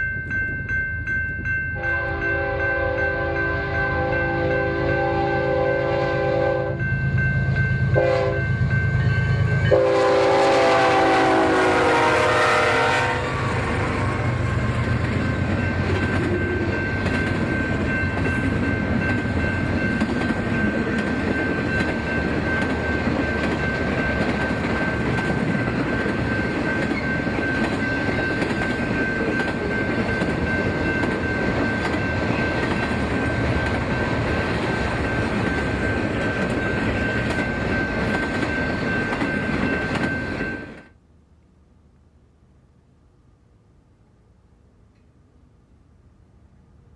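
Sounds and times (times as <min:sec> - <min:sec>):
train horn blasts: 0:01.8 - 0:06.9, 0:07.9 - 0:08.5, 0:09.4 - 0:14.3
train wheels on rail joints: 0:06.8 - 0:41.0.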